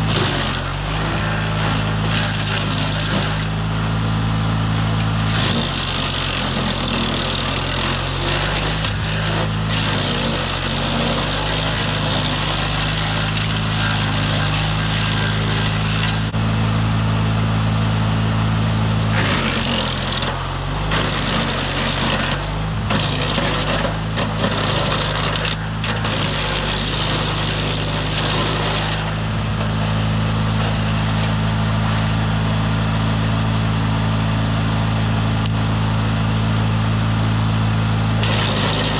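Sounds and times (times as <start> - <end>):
grinding hiss of chipping: 0.0 - 16.4, 19.0 - 31.4, 38.2 - 38.9
wood chipper engine droning: 0.0 - 38.9.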